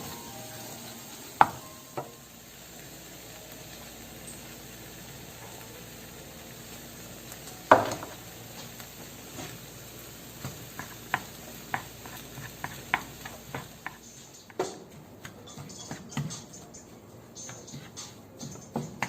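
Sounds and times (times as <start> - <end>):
rice sizzling in a pan: 0.0 - 16.3
spatula clacking and scraping pan: 10.4 - 16.8.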